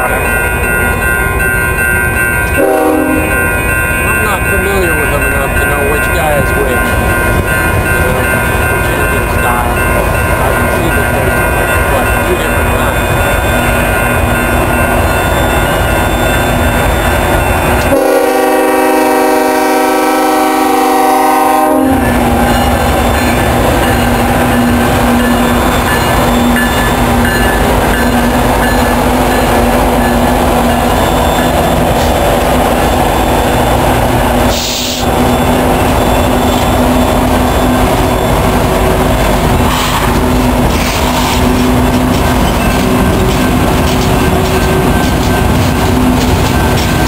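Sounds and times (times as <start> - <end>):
locomotive engine rumble: 0.0 - 47.0
locomotive horn: 2.6 - 3.4, 17.8 - 22.2
freight cars rolling on rails: 3.3 - 47.0.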